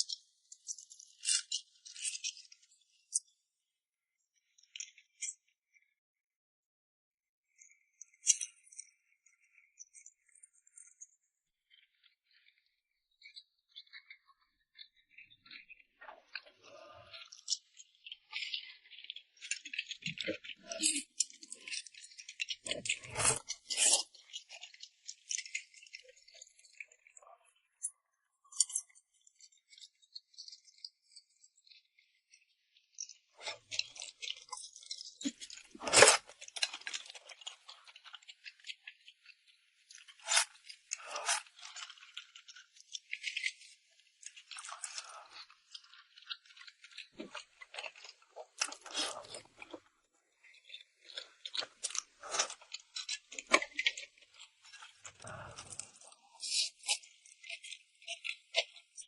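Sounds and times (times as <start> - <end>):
wet chewing and smacking: 17.1 - 32.0, 33.4 - 58.9.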